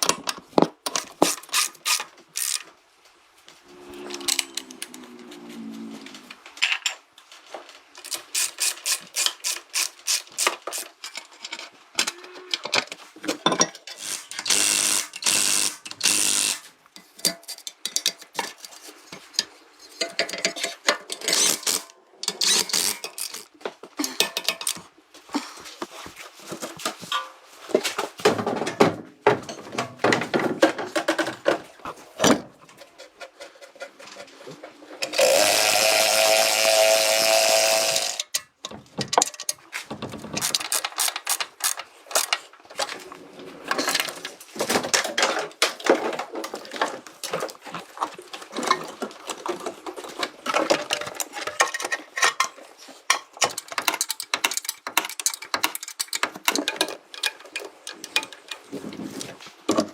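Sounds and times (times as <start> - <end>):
clicks taps and knocks: 47.3 - 58.6.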